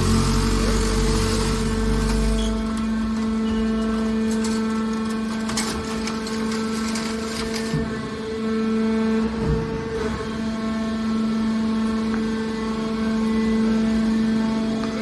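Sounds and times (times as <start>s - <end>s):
baler machine hum: 0.0s - 6.6s.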